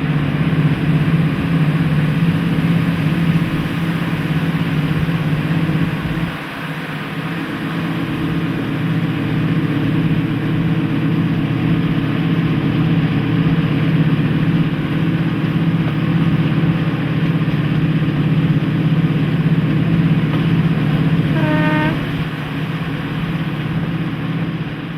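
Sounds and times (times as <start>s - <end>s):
diesel locomotive engines droning: 0.0s - 24.9s
train horn note: 20.6s - 22.8s.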